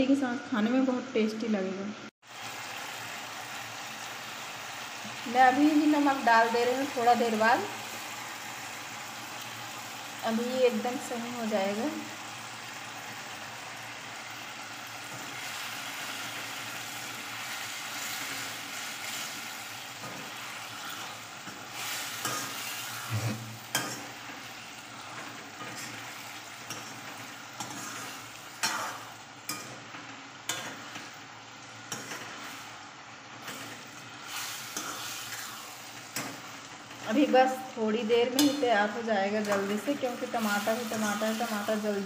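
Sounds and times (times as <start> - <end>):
curry sizzling in a frying pan: 2.1 - 42.0
spoon scraping a pan: 20.0 - 31.2, 31.8 - 32.7, 33.4 - 37.1, 39.4 - 41.8.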